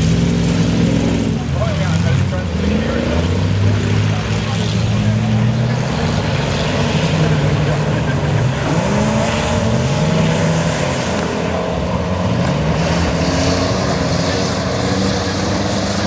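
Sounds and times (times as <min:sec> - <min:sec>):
racing truck engines: 0:00.0 - 0:16.0.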